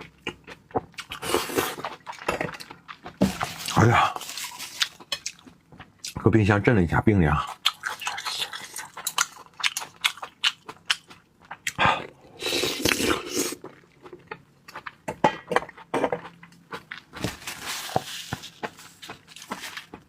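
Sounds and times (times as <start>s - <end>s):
wet chewing with mouth clicks: 0.0s - 6.2s, 7.5s - 11.8s, 12.8s - 15.1s.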